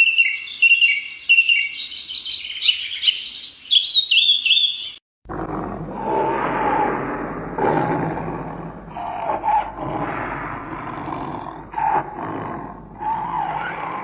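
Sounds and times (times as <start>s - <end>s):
animal calling in rough bursts: 8.8s - 14.0s.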